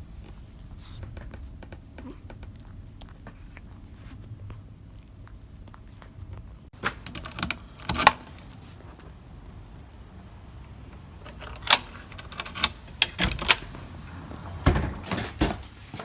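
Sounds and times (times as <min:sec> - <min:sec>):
door lock and keys clicking: 0:07.0 - 0:08.4, 0:10.9 - 0:13.9.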